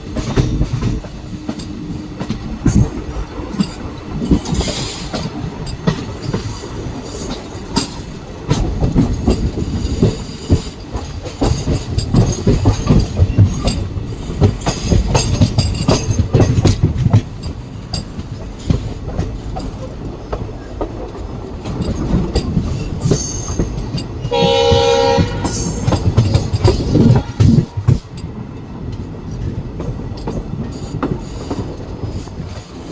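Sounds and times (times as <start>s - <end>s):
train wheels clattering: 0.0s - 32.9s
locomotive horn blast: 24.3s - 25.7s, 27.1s - 27.7s.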